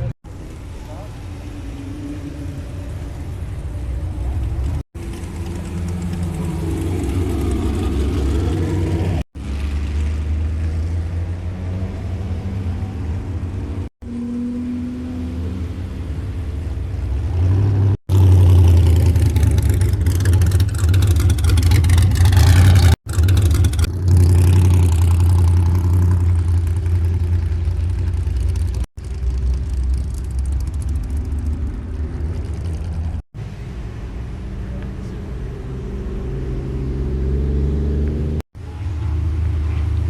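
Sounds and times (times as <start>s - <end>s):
car engines rumbling: 0.0s - 40.0s.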